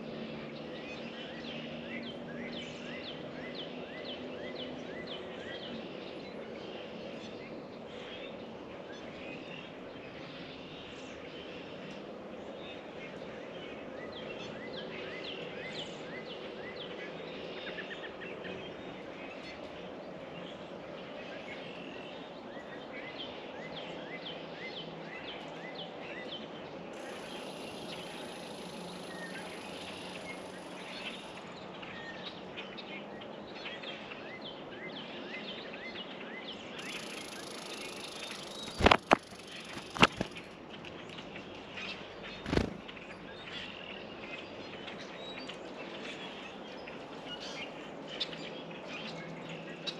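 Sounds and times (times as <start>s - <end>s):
small songbirds chirping: 12.7s - 49.9s
outdoor background hiss: 26.7s - 31.6s, 36.7s - 41.3s.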